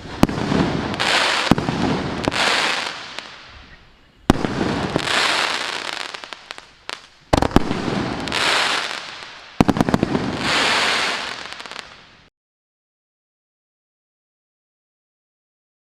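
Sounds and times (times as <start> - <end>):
fireworks sharp reports: 0.0 - 12.0.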